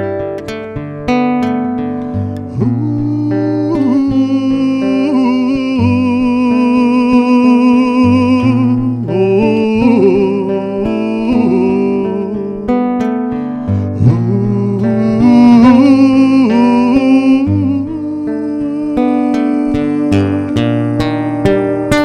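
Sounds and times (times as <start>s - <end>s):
acoustic guitar playing: 0.0s - 22.0s.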